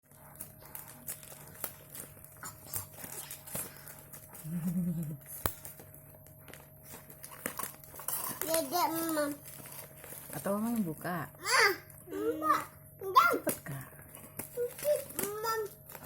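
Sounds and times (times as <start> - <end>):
steady low hum: 0.1 - 16.0
person humming: 4.4 - 5.2.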